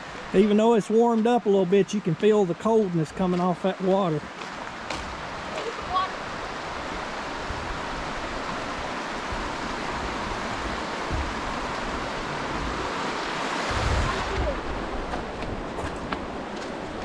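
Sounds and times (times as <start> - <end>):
creek water rushing: 0.0 - 17.0
wind buffeting microphone: 4.6 - 17.0.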